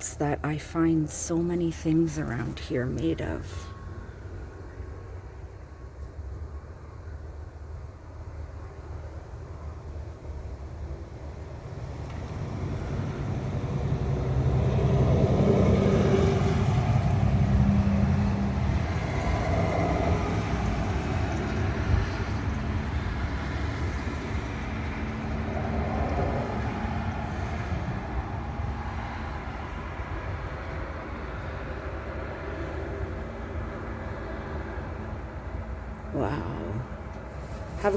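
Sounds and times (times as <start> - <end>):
passing vehicle rumble: 8.6 - 37.9.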